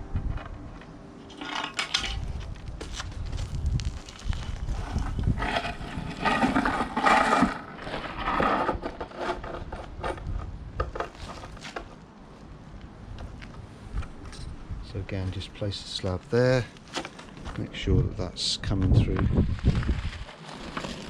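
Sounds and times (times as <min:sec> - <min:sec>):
stone slab scraping: 0:04.2 - 0:11.7.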